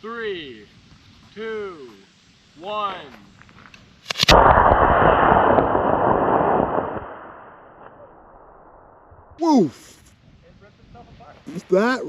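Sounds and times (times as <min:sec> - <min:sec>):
rocket motor ignition pops: 0:04.0 - 0:08.6
rocket thrust rushing hiss: 0:04.0 - 0:09.3.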